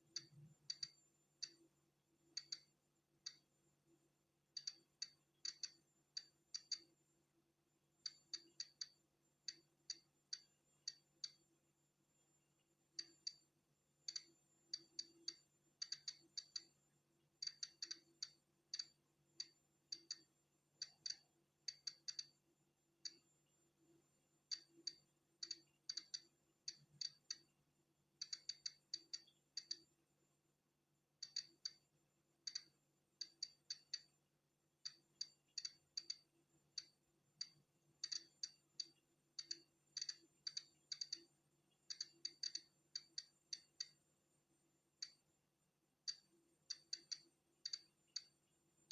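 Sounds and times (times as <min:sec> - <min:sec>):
faint steady hum: 0:00.0 - 0:48.9
geiger counter clicking: 0:00.1 - 0:01.6, 0:02.3 - 0:03.5, 0:04.6 - 0:06.9, 0:08.0 - 0:11.5, 0:13.0 - 0:16.8, 0:17.4 - 0:22.4, 0:24.5 - 0:27.5, 0:28.2 - 0:30.0, 0:31.2 - 0:34.1, 0:34.8 - 0:41.3, 0:41.9 - 0:44.0, 0:45.0 - 0:45.3, 0:46.0 - 0:48.9.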